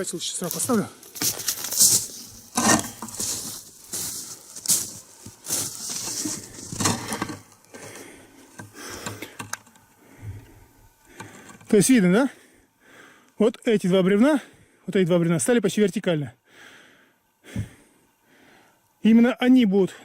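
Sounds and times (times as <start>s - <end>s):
footsteps in snow: 0.0s - 7.1s
camera handling crunching and rustling: 0.4s - 9.8s.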